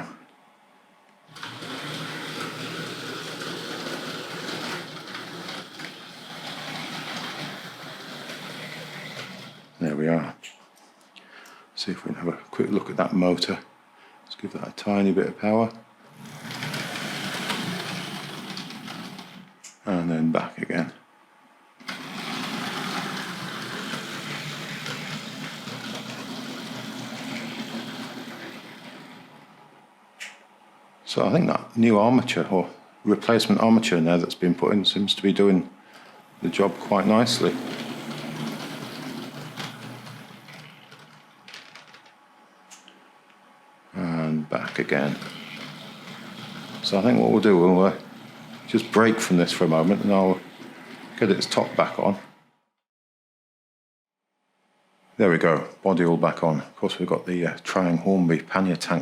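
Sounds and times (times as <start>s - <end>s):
model train motor running: 1.3s - 9.8s, 16.1s - 19.5s, 21.8s - 29.6s, 36.4s - 42.0s, 44.6s - 52.3s.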